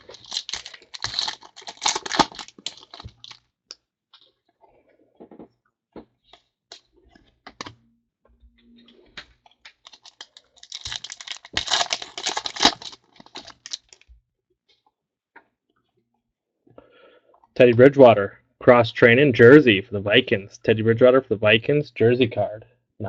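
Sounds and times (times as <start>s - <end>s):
trading cards being handled: 0.0s - 3.4s, 9.1s - 14.1s
rustling and clicking of packaging: 0.0s - 3.5s, 8.8s - 14.1s.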